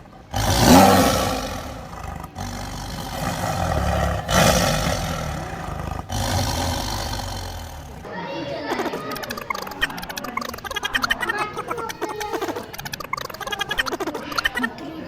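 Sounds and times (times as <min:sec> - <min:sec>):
large animal roaring: 0:00.3 - 0:08.1.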